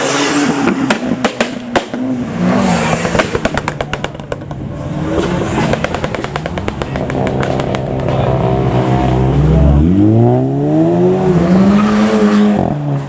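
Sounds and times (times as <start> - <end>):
car engine revving: 0.0 - 13.0
exhaust popping and crackling: 0.6 - 9.4.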